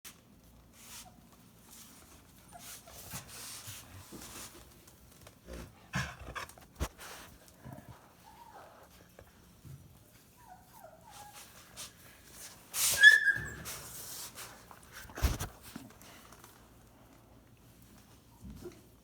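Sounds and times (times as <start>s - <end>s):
puppies scuffling: 0.4s - 19.0s
puppy whines: 12.9s - 13.9s.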